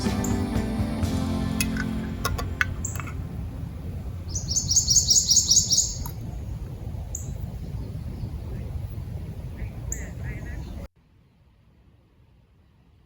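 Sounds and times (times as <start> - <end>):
low outdoor rumble: 0.0 - 13.0
short high bird chirps: 4.3 - 6.1
songbird trilling: 4.3 - 6.2.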